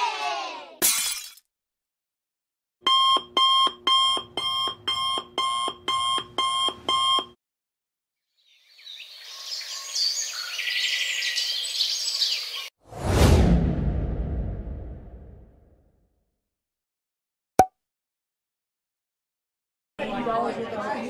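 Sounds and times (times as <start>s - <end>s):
birds chirping and singing: 8.4s - 12.7s.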